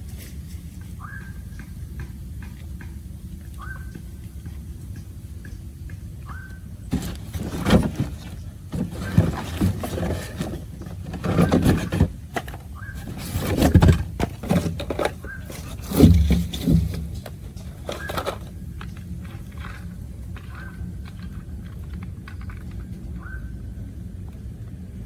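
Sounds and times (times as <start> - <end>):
scraping and knocking: 6.9 - 23.0.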